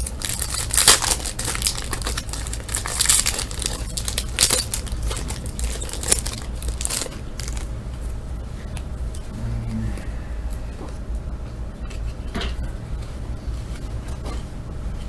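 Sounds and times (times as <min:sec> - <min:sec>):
card pack wrapper crinkling: 0:00.0 - 0:07.7
steady low hum: 0:00.0 - 0:15.0.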